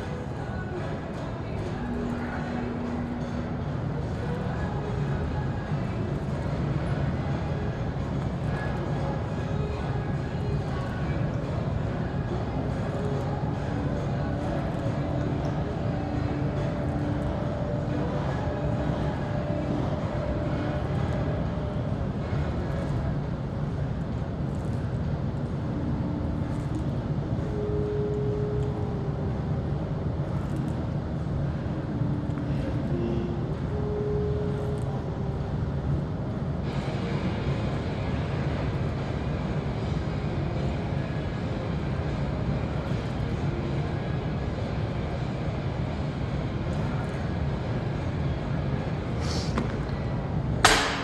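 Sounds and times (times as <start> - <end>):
faint steady hum: 0.0 - 51.0
low background rumble: 0.0 - 51.0
brief hiss: 49.2 - 49.6
sharp metal clank: 50.6 - 51.0.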